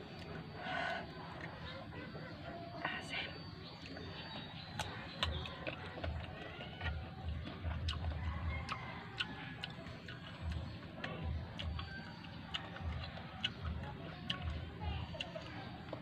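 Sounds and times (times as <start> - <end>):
wet chewing: 0.0 - 16.0
crisp mango crunching: 3.6 - 16.0.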